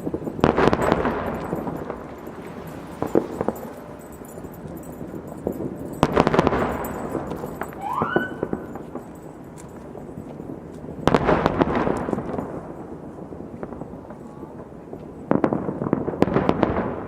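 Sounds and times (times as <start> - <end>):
firecrackers crackling: 0.0 - 17.0
short rising whistle: 7.8 - 8.7.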